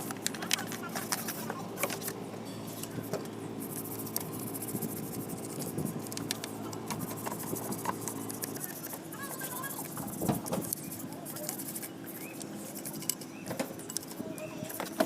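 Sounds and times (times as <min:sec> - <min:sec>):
machine hum: 0:00.0 - 0:15.0
scattered clicks: 0:06.0 - 0:09.0.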